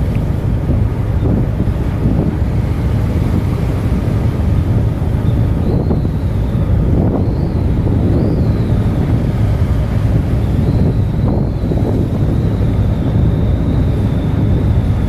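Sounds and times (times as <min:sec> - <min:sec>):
wind buffeting microphone: 0:00.0 - 0:15.0
faint wavering whistle: 0:04.9 - 0:15.0.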